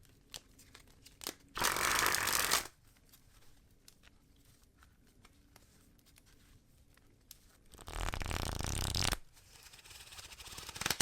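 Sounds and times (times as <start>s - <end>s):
cards shuffled by hand: 0.2s - 11.0s
fast flutter of cards: 7.8s - 11.0s.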